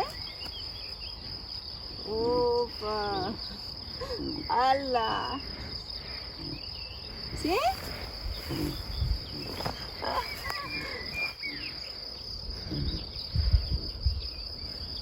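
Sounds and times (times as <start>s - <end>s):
insects chirring: 0.0s - 15.0s
wind on microphone: 7.3s - 11.2s, 12.6s - 15.0s.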